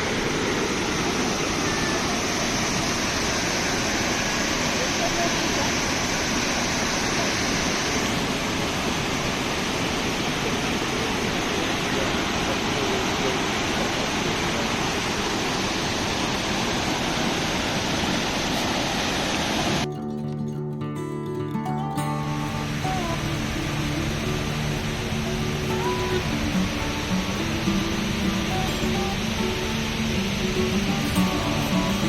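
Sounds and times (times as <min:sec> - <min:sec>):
waterfall roar: 0:00.0 - 0:19.9, 0:22.0 - 0:32.0
acoustic guitar music: 0:19.7 - 0:32.0.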